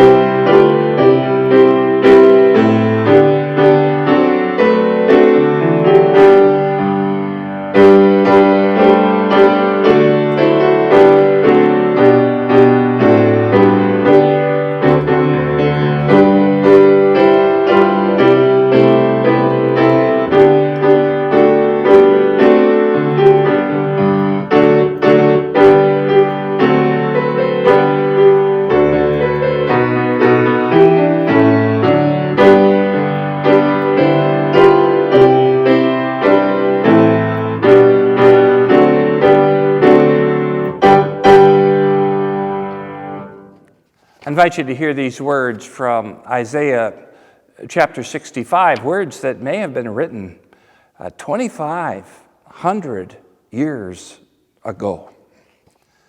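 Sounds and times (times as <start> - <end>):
piano piece: 0.0 - 55.0.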